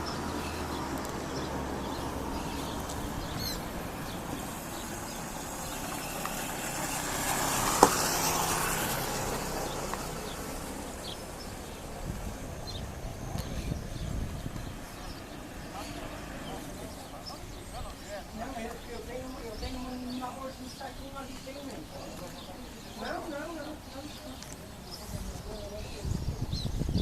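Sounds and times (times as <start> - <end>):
low engine hum: 0.0 - 17.9
vehicle rushing past: 0.0 - 18.2.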